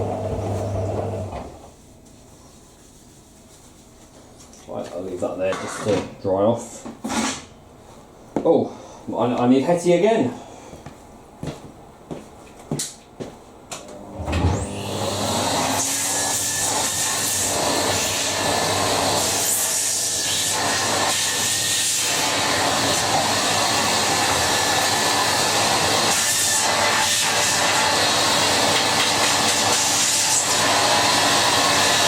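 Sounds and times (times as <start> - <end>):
vacuum cleaner motor running: 0.0 - 1.7, 13.8 - 32.0.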